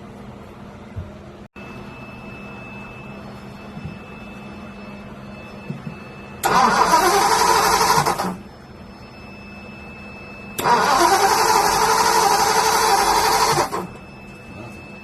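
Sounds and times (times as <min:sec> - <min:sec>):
car engine cranking by starter: 0:06.4 - 0:08.4, 0:10.6 - 0:13.9.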